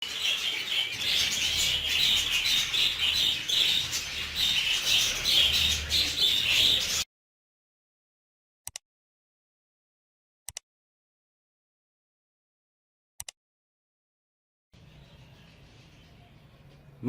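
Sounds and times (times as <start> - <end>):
budgerigars chattering: 0.0 - 7.0.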